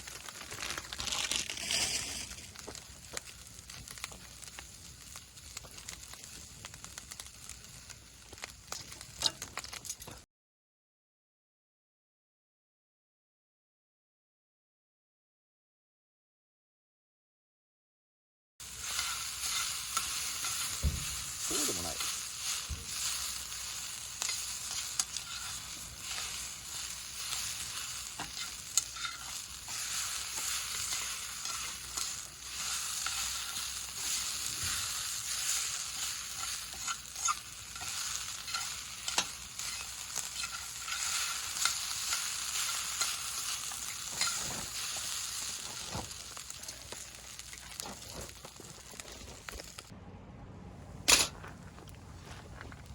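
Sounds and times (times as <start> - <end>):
food sizzling in a pan: 0.0 - 10.2, 18.6 - 49.9.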